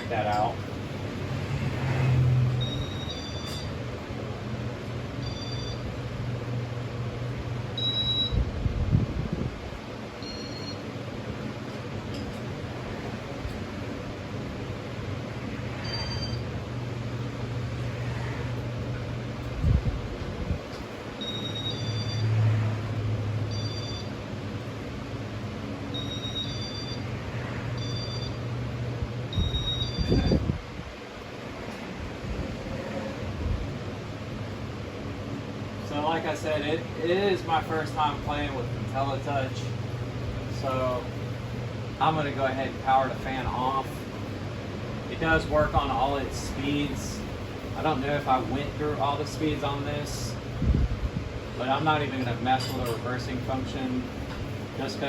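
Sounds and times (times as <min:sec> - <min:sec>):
fan motor humming: 0:00.0 - 0:55.0
short electronic beeps: 0:02.6 - 0:03.8, 0:05.2 - 0:05.9, 0:07.8 - 0:08.4, 0:10.2 - 0:10.8, 0:15.8 - 0:16.5, 0:21.2 - 0:22.4, 0:23.5 - 0:24.2, 0:25.9 - 0:27.1, 0:27.8 - 0:28.4, 0:29.3 - 0:30.4.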